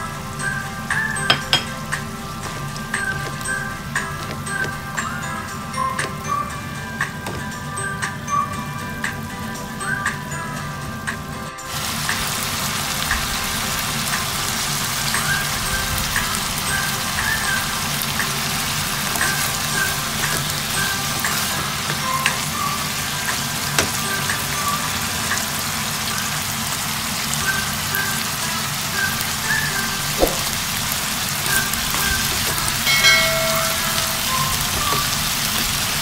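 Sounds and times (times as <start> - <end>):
food sizzling in a wok: 11.7 - 36.0.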